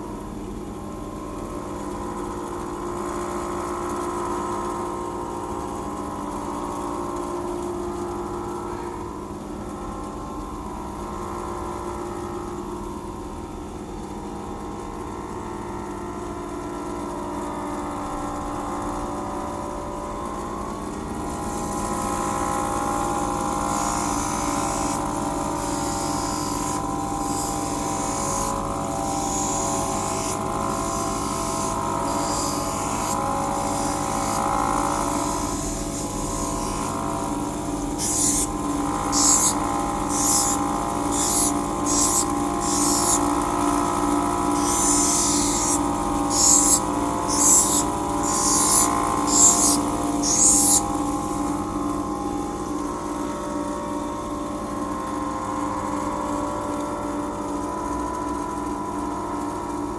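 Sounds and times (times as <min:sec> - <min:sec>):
electric hand grinder running: 0:20.8 - 0:52.4
lens grinding strokes: 0:23.7 - 0:43.4, 0:44.5 - 0:51.4.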